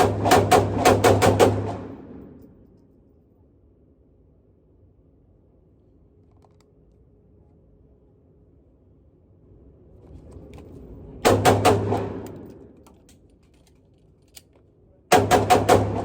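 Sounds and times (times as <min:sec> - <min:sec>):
pistol gunshots echoing: 0:00.0 - 0:02.4, 0:11.3 - 0:12.6, 0:15.1 - 0:16.0.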